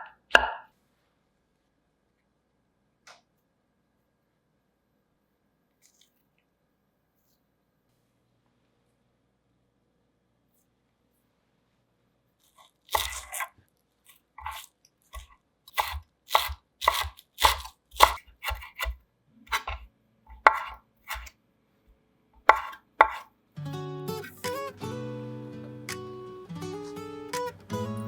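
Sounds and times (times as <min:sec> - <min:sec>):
knife chopping on cutting board: 0:00.0 - 0:00.6, 0:12.9 - 0:13.5, 0:14.4 - 0:21.3, 0:22.4 - 0:23.3.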